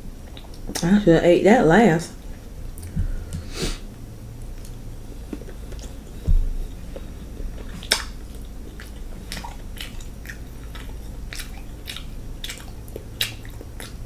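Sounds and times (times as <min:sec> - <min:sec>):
wet chewing and lip smacking: 0:04.4 - 0:14.0.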